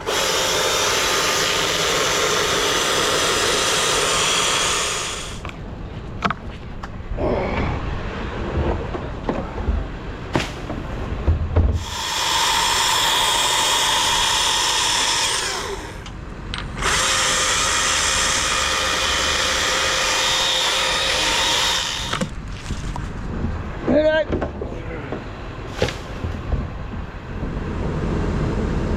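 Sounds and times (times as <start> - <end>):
chainsaw running at full throttle: 0.0 - 5.4, 11.8 - 16.1, 16.8 - 22.3.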